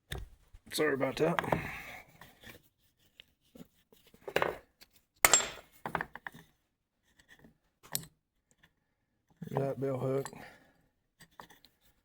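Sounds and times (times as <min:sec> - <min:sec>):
small steel parts clinking: 0:05.2 - 0:05.7.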